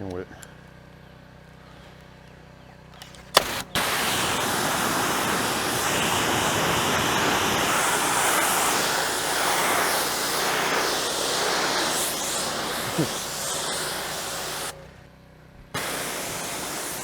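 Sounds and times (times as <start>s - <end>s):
pressure washer spraying: 3.4s - 15.0s, 15.8s - 17.0s.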